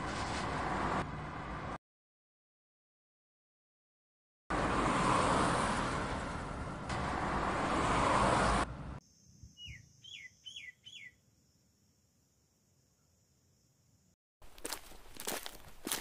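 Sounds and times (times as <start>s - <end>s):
bird chirping: 9.1s - 11.2s.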